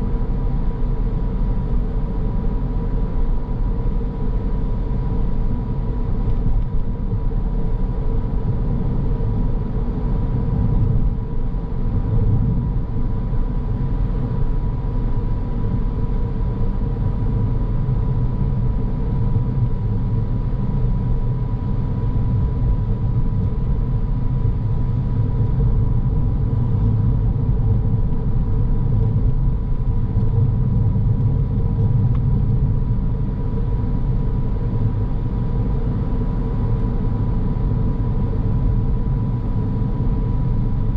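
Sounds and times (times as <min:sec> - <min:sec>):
faint steady whine: 0:00.0 - 0:40.9
road and engine rumble: 0:00.0 - 0:40.9.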